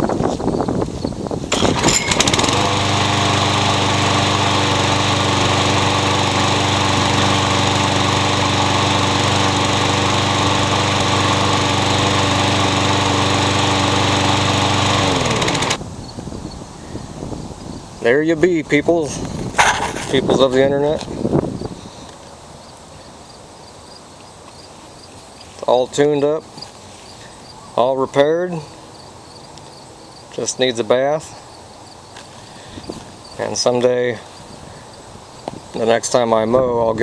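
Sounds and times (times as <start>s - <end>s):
lawn mower engine starting and running: 1.4s - 15.8s, 18.7s - 21.2s.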